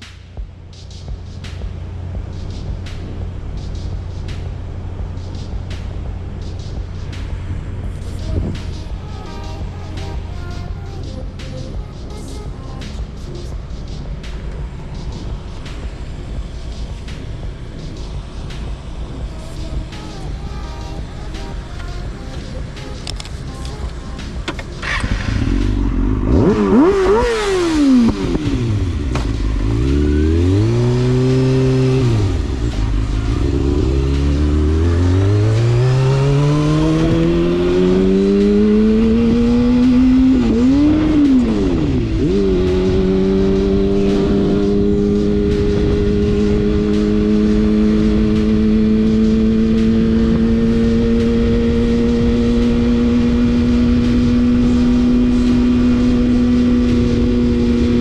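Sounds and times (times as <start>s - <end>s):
motorcycle engine revving: 1.0s - 58.0s
motorcycle gear change: 23.0s - 25.6s.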